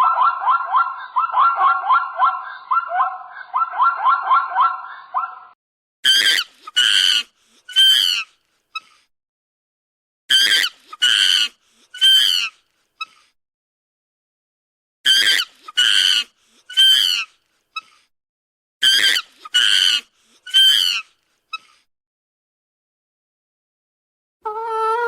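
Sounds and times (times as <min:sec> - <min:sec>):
animal high-pitched calls: 0:00.0 - 0:05.5.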